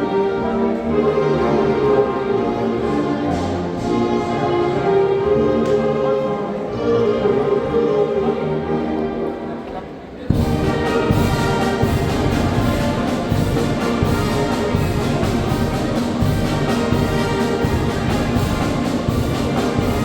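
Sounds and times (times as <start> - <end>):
brass chords: 0.0 - 20.0
wind band playing: 0.0 - 20.0
steady drum beat: 10.3 - 20.0.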